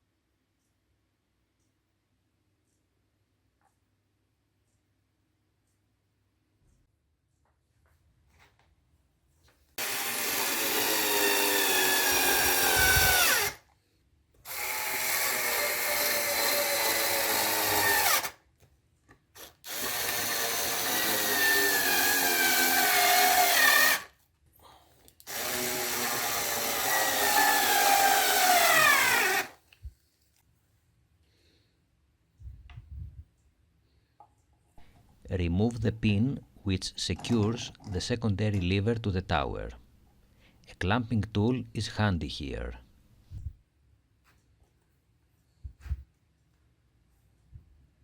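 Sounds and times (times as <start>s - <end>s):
small electric power tool running: 9.8s - 13.6s, 14.5s - 18.3s, 19.7s - 24.1s, 25.3s - 29.6s.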